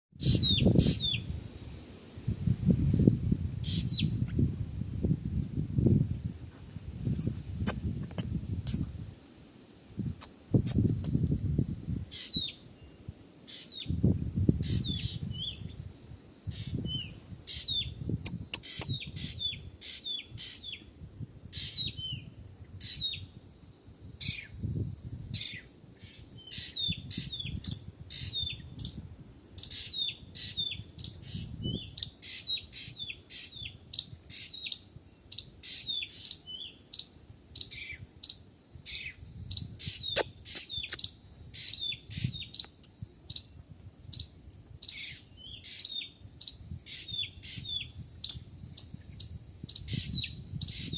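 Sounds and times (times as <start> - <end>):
small birds chirping: 0.2 - 1.3, 3.6 - 6.0, 12.1 - 15.8, 16.5 - 20.9, 24.2 - 29.0, 29.6 - 50.9.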